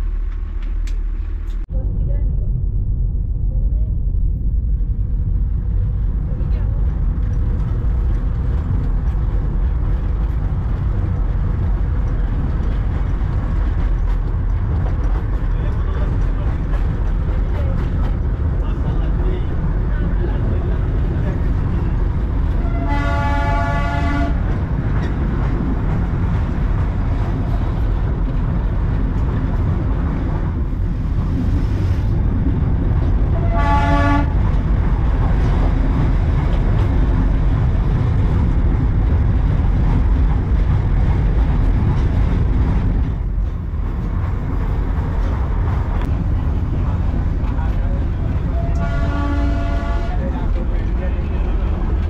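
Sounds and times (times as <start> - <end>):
train rumbling: 0.0 - 52.0
train horn toots: 22.5 - 24.5, 33.4 - 34.5, 48.5 - 50.3.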